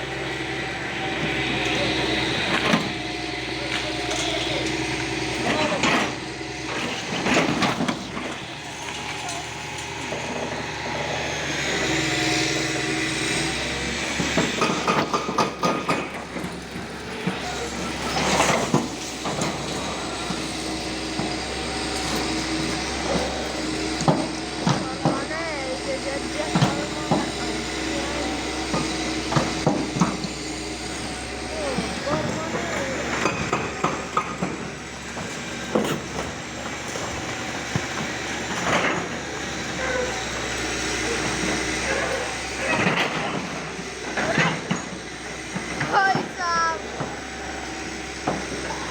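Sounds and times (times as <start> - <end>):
grinding clatter: 0.0 - 48.9
vehicle engine running: 0.0 - 48.9
sharp knocks and clatter: 14.1 - 21.4, 28.7 - 31.0, 31.8 - 41.9.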